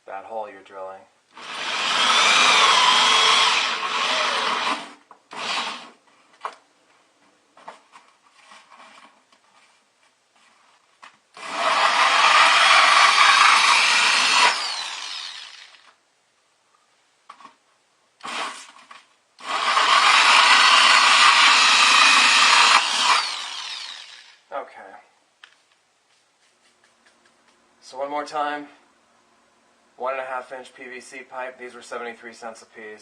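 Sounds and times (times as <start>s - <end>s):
electric drill with hole saw cutting: 1.4s - 5.9s, 11.4s - 16.0s, 18.2s - 18.8s, 19.4s - 24.5s.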